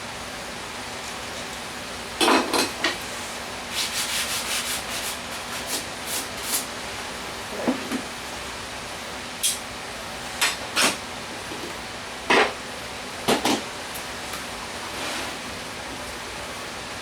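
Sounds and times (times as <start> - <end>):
rubbing and scraping strokes: 3.7 - 6.6.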